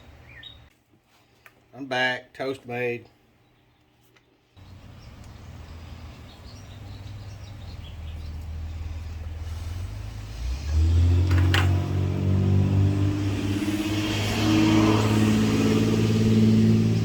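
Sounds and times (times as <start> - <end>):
engine humming: 4.6 - 17.0.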